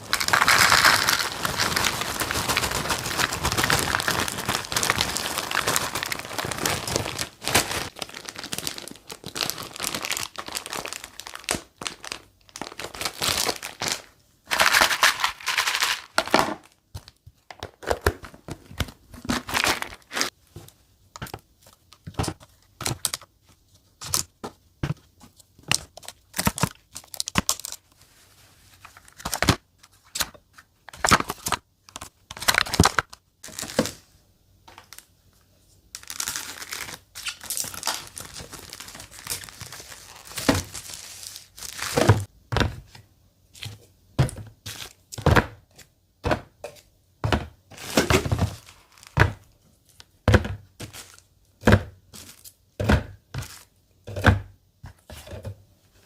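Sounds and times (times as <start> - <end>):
packaging tearing: 0.0 - 16.7, 19.3 - 20.3, 36.0 - 42.2
plastic packaging crinkling: 0.0 - 17.1, 19.1 - 20.4, 25.9 - 28.1, 31.0 - 34.0, 36.0 - 42.3, 47.8 - 49.2, 50.8 - 51.3.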